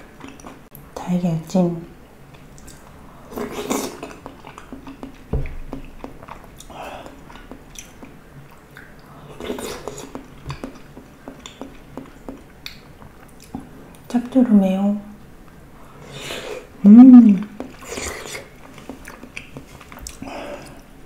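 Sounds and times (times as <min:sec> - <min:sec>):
wet chewing and lip smacking: 0:00.1 - 0:00.8, 0:02.3 - 0:14.1, 0:17.4 - 0:20.9.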